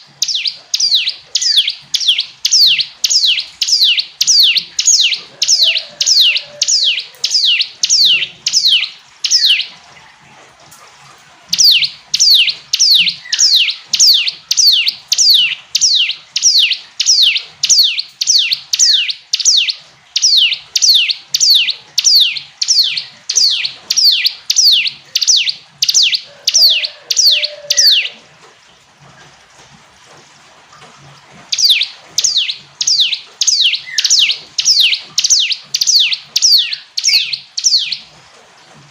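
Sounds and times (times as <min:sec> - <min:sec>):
bird singing whistled notes: 0:00.0 - 0:09.7, 0:11.5 - 0:28.2, 0:31.5 - 0:38.1.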